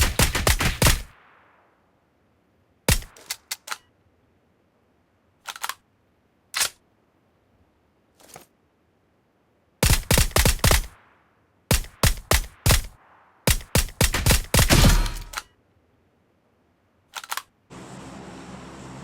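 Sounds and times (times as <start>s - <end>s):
gunshots: 0.0s - 1.8s, 2.9s - 3.5s, 9.8s - 15.5s.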